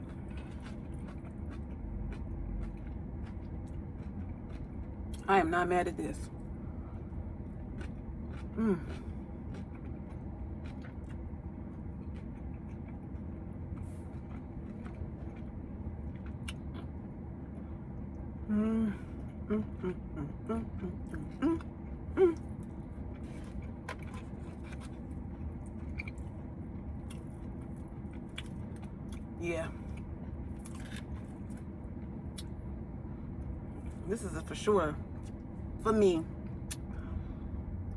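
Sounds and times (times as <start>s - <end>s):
chewing: 0.0s - 5.2s, 6.4s - 17.0s, 19.1s - 32.6s
low hum: 0.0s - 37.9s
murmured vocal sounds: 18.5s - 21.6s.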